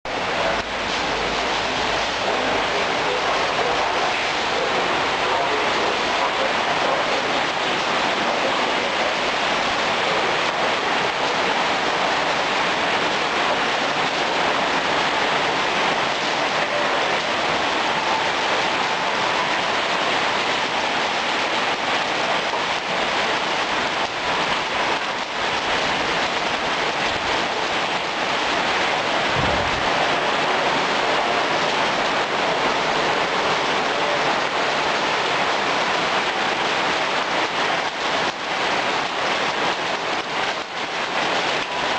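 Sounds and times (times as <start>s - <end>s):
heavy rain pouring: 0.0s - 41.9s
low thump: 29.4s - 29.8s.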